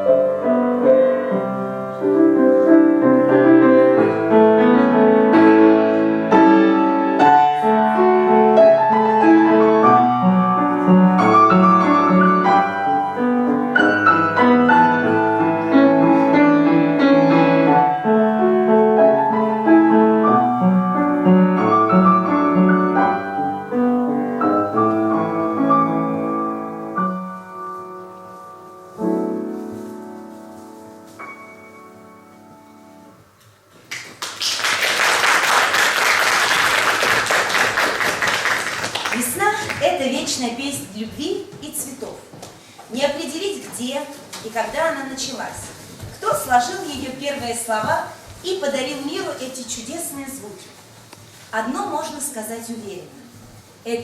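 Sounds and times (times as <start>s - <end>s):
piano playing: 0.0s - 33.7s.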